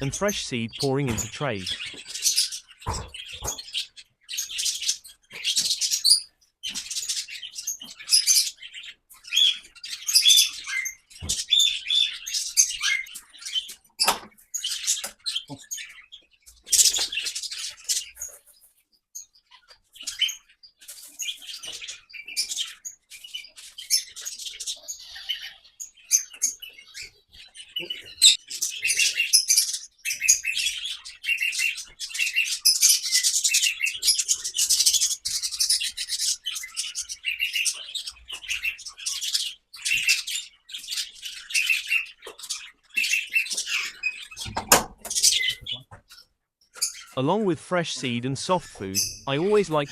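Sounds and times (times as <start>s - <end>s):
small birds chirping: 0.0s - 47.2s.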